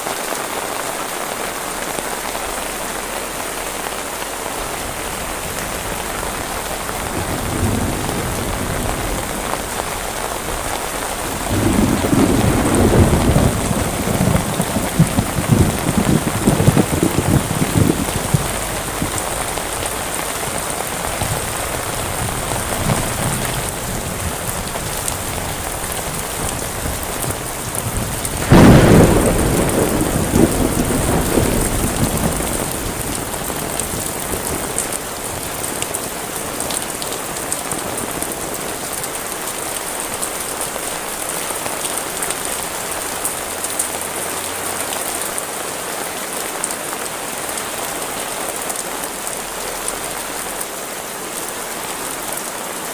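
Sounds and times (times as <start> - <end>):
heavy rain falling: 0.0 - 52.9
thunder clap rumbling: 4.4 - 42.9.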